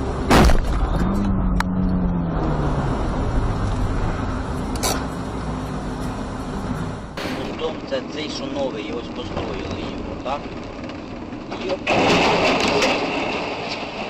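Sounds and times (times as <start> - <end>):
car road and engine noise: 0.0 - 14.0
loud thump: 0.3 - 0.9.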